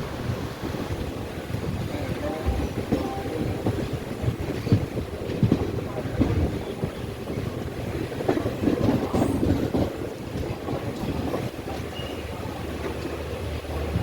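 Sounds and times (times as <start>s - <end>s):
train rumble: 0.0s - 14.0s.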